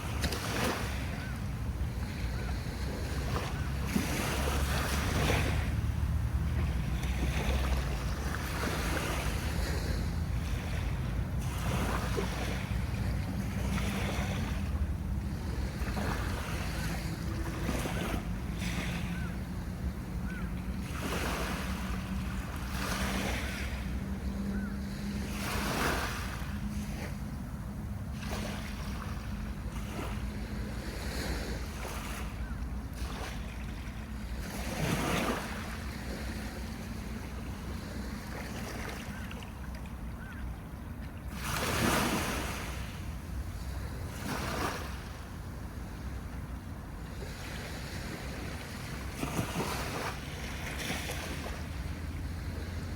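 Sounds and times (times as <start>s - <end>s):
sea waves washing onto beach: 0.0s - 27.2s.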